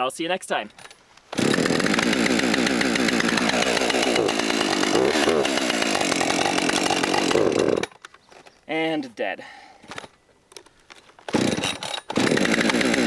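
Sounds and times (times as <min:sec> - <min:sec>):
chainsaw running: 0:00.8 - 0:08.0, 0:11.3 - 0:13.0.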